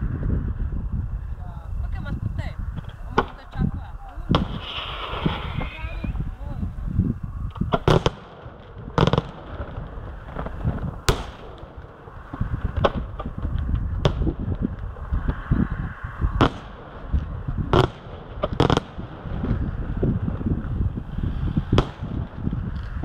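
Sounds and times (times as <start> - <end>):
low rumble: 0.0 - 23.0
firework shells bursting: 4.2 - 6.8, 7.5 - 15.5, 16.3 - 23.0.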